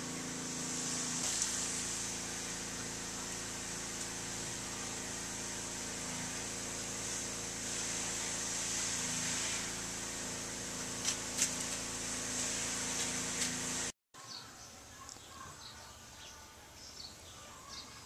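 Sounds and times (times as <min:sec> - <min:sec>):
mechanical hum with hiss: 0:00.0 - 0:18.0.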